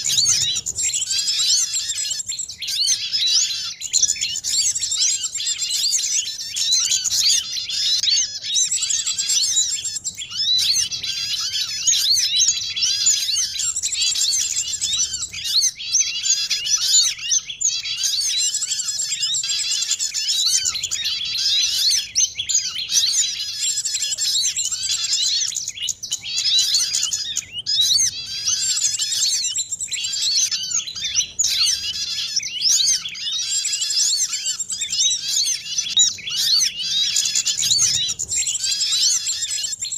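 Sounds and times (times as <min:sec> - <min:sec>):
small songbirds twittering: 0:00.0 - 0:39.9.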